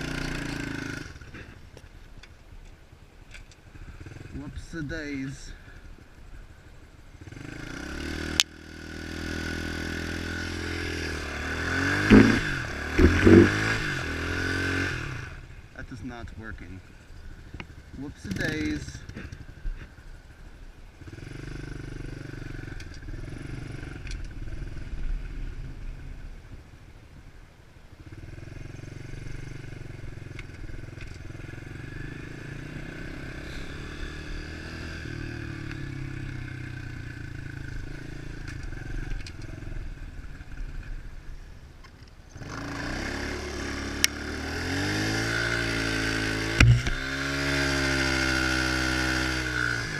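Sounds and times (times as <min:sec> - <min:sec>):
motorcycle engine revving: 0:00.0 - 0:01.6, 0:03.8 - 0:05.9, 0:07.0 - 0:16.0, 0:16.9 - 0:26.3, 0:28.0 - 0:41.2, 0:42.3 - 0:49.9
rear tire spinning: 0:10.8 - 0:14.9.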